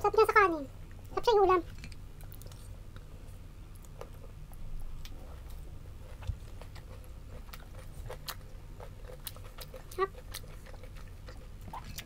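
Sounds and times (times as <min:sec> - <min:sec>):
wet mouth clicks chewing: 0:06.2 - 0:12.0.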